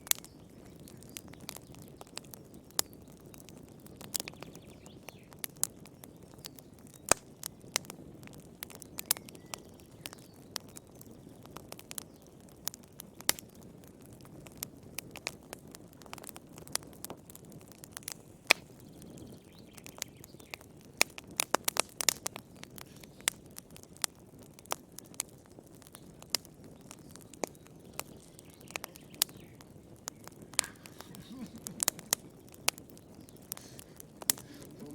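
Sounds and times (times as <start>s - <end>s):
wood fire crackling: 0.0s - 34.9s
rush of flame: 21.0s - 34.9s.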